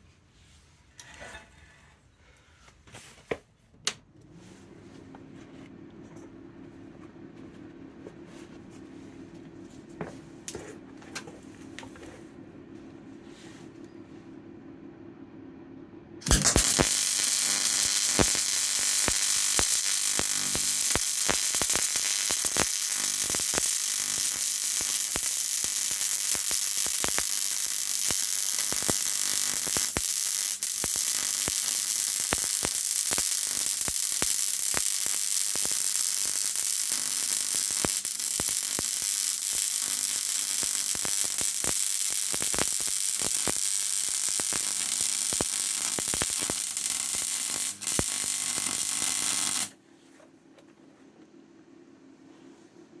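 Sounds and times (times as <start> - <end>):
arc welding crackling sizzle: 16.2 - 49.7.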